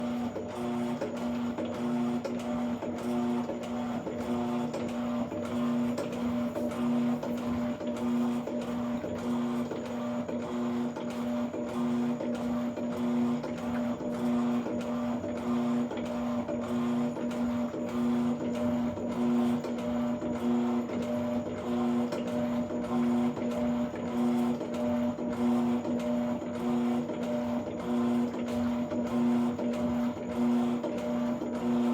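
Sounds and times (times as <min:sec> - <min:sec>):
washing machine motor humming: 0:00.0 - 0:31.9.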